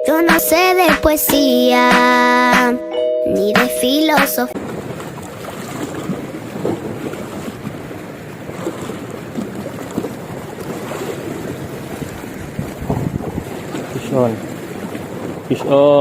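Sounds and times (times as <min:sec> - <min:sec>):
sea water washing: 0:04.5 - 0:16.0
wind buffeting microphone: 0:04.6 - 0:16.0.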